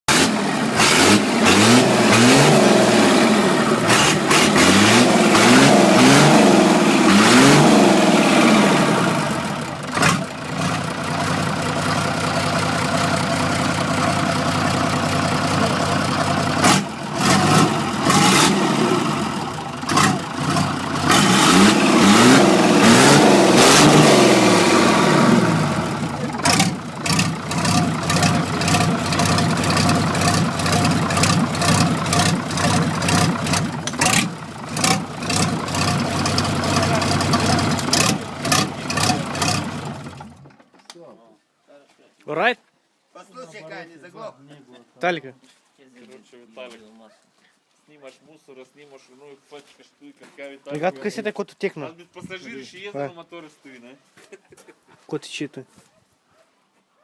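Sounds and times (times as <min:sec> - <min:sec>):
diesel truck engine revving: 0:00.0 - 0:40.5.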